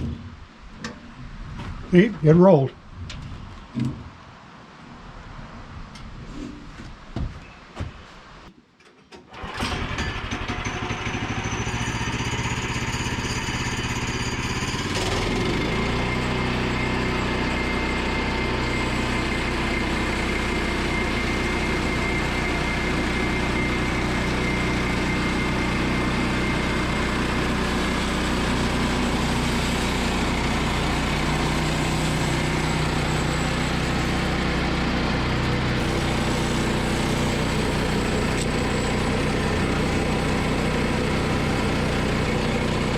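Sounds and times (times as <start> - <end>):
small gasoline engine running: 9.3 - 42.9.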